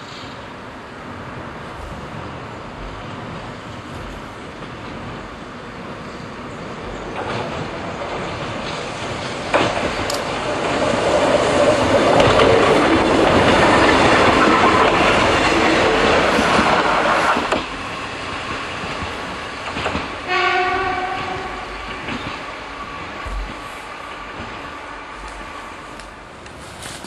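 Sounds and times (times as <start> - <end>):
train wheel and rail noise: 0.0 - 27.0
train horn blast: 20.2 - 21.9.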